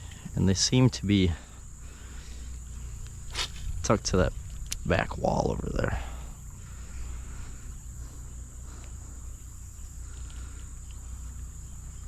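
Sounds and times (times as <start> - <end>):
faint ticks: 0.0 - 0.4, 8.6 - 12.0
high-pitched insect chorus: 0.0 - 12.0
low steady rumble: 0.0 - 12.0.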